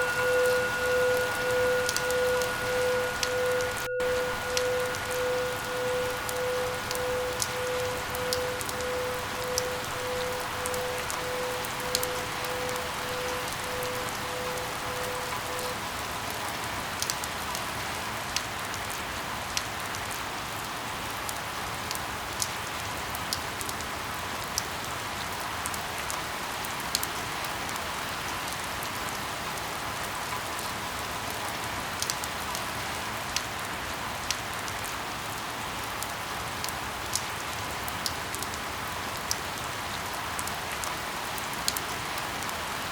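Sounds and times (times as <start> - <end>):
faint pulsing tone: 0.0 - 15.8
steady rain falling: 0.0 - 42.9.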